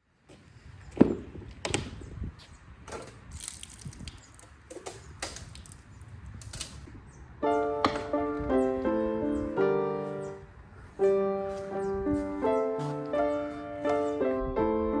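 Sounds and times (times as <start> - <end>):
piano music: 7.4 - 15.0.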